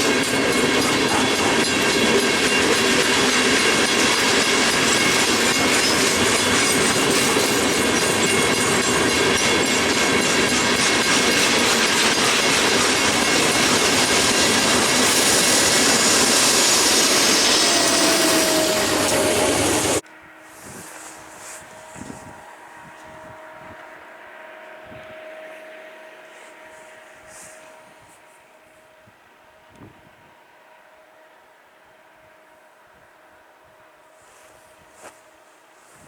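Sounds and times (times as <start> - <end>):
train wheels clattering over rails: 0.0 - 20.0
train wheels squealing: 0.0 - 29.0.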